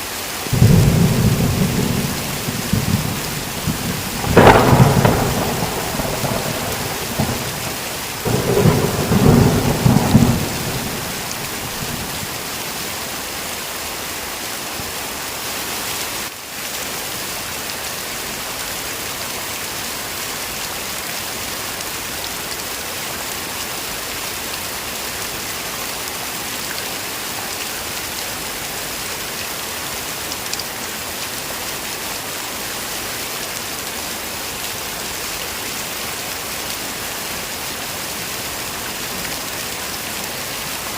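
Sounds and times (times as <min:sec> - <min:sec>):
heavy rain falling: 0:00.0 - 0:40.9
low rumble of thunder: 0:00.5 - 0:12.4.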